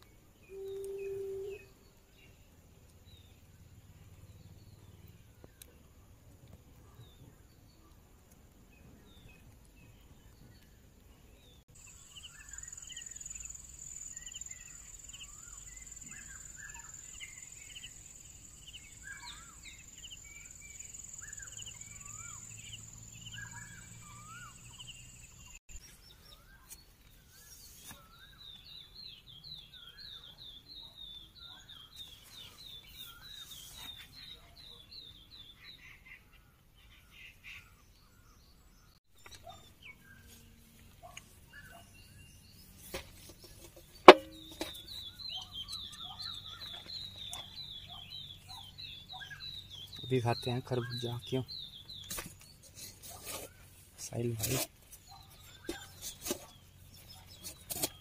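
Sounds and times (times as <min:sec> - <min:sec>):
bird trill: 0:00.4 - 0:01.8
birds chirping and whistling: 0:00.4 - 0:01.8, 0:11.8 - 0:25.6, 0:41.4 - 0:58.0.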